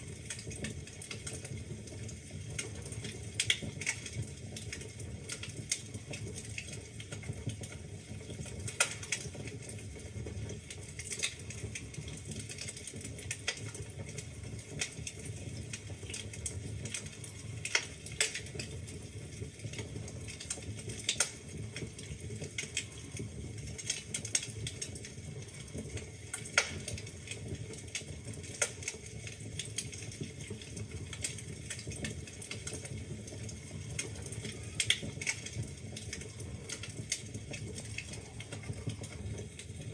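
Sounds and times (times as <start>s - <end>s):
burning logs crackling and popping: 0.0s - 39.9s
fire rumbling in a fireplace: 0.0s - 39.9s.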